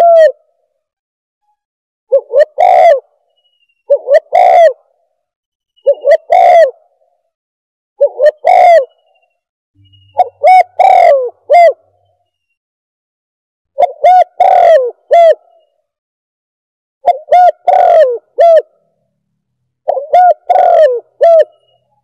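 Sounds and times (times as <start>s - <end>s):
dove cooing: 0.0s - 0.4s, 2.1s - 3.1s, 3.9s - 5.0s, 5.8s - 7.0s, 8.0s - 9.1s, 10.2s - 11.9s, 13.8s - 15.6s, 17.0s - 18.8s, 19.8s - 21.8s.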